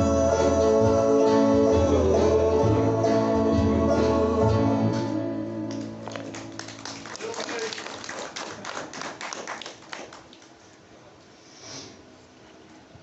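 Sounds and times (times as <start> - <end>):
acoustic guitar chords: 0.0 - 6.6
gospel band playing: 0.0 - 6.9.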